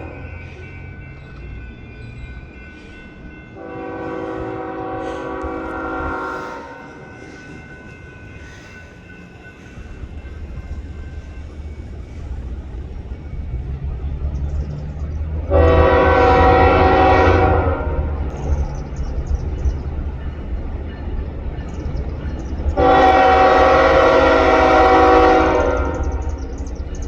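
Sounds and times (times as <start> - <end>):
locomotive horn blasts: 3.6 - 7.0, 15.4 - 18.2, 22.8 - 26.2
diesel engine rumble: 10.1 - 16.6.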